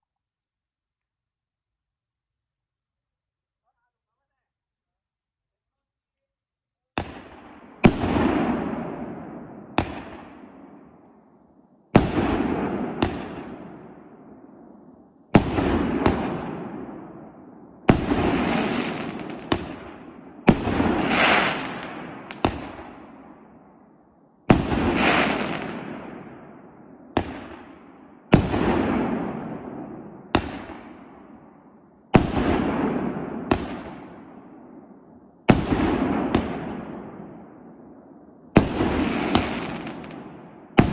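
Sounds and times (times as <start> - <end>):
fireworks bangs with hissing tails: 7.0 - 10.9, 12.0 - 13.9, 15.3 - 17.2, 17.9 - 23.6, 24.5 - 26.5, 27.1 - 34.6, 35.5 - 37.5, 38.6 - 40.9.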